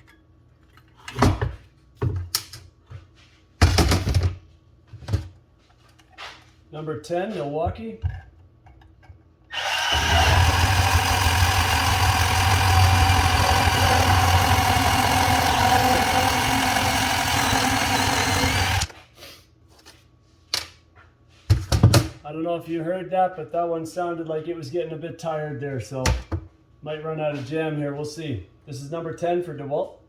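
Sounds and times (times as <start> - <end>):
cordless bandsaw cutting pipe: 9.5 - 18.9.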